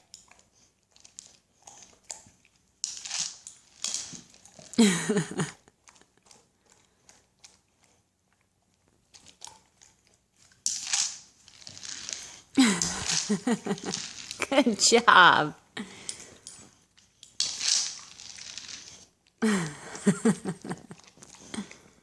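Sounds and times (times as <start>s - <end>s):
dog chewing and crunching kibble: 0.0s - 4.8s, 5.4s - 14.6s, 16.1s - 19.4s, 20.8s - 22.0s.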